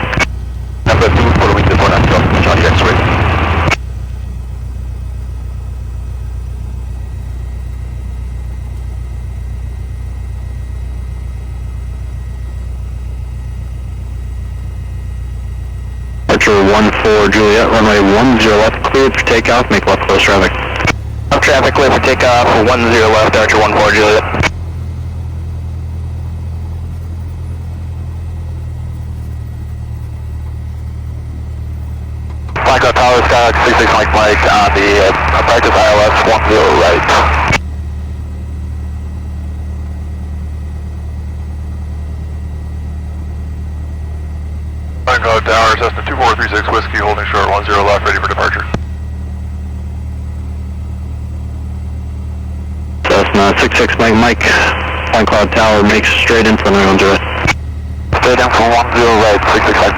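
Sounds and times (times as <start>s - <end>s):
aircraft piston engine droning: 0.0s - 59.9s.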